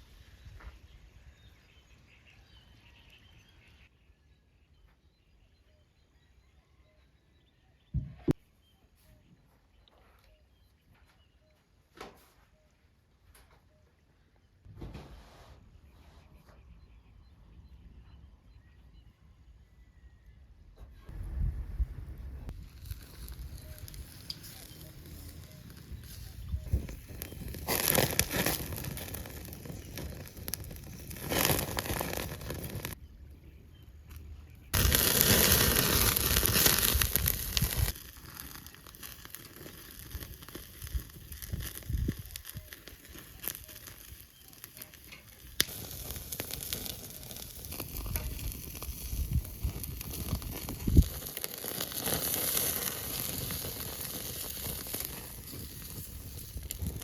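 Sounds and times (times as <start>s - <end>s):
wood fire crackling: 22.5s - 33.0s, 34.0s - 57.0s
food sizzling: 22.6s - 33.0s, 34.8s - 57.0s
loud steady hiss: 34.8s - 39.5s.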